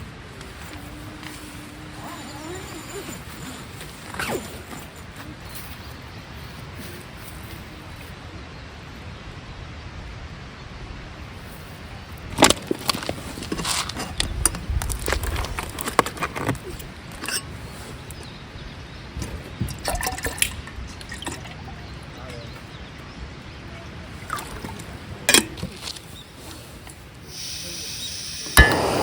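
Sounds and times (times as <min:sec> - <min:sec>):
liquid drips and splashes: 0:19.6 - 0:21.8.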